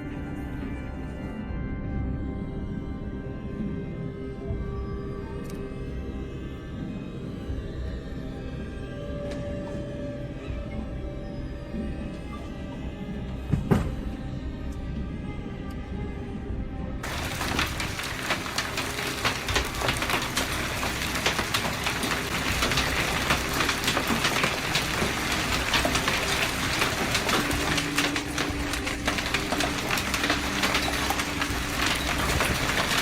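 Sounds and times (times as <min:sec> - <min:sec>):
heavy rain beating on surface: 0:17.0 - 0:33.0.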